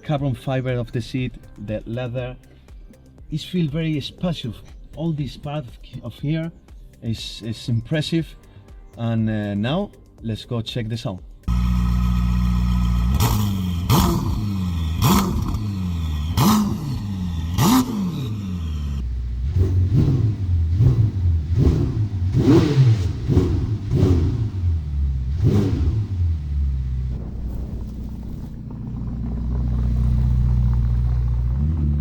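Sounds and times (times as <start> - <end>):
car engine idling and revving: 11.4 - 32.0.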